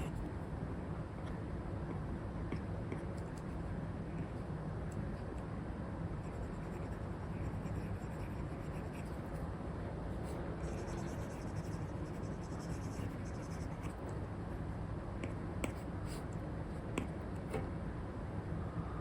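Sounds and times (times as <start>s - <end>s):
steady background noise: 0.0s - 19.0s
stylus scratching on screen: 6.2s - 9.4s, 10.2s - 14.2s.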